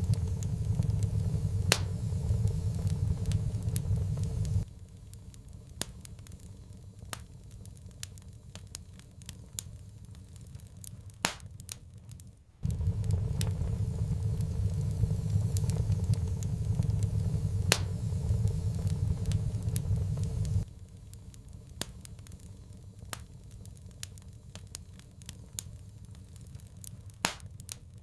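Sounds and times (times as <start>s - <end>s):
low rumble: 0.0s - 4.7s, 12.6s - 20.7s
wood fire crackling and popping: 0.0s - 28.0s.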